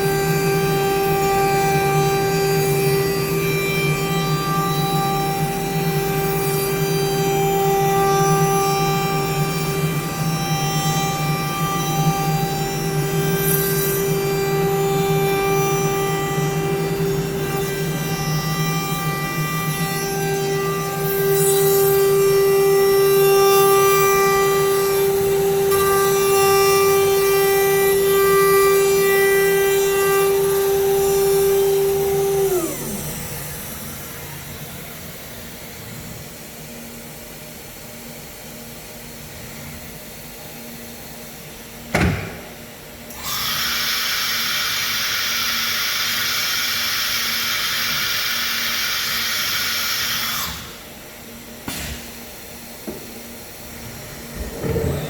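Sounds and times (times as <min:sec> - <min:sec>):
router spindle whine: 0:00.0 - 0:36.8, 0:43.0 - 0:51.5, 0:52.8 - 0:55.0
pneumatic pop: 0:41.9 - 0:42.6, 0:51.6 - 0:53.1, 0:53.9 - 0:55.0.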